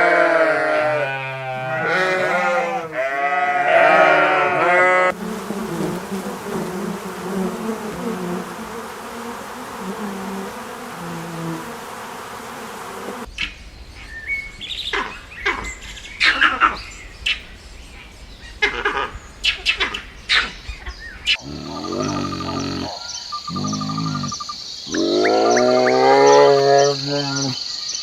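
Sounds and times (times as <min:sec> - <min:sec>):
flying insect buzzing: 0:03.9 - 0:13.3, 0:21.4 - 0:27.5.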